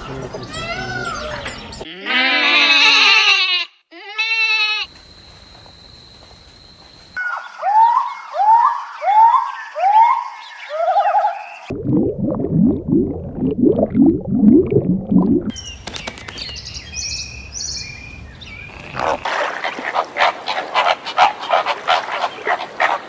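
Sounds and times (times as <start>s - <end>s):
goat bleating: 1.9s - 4.9s
birds twittering: 15.5s - 19.3s.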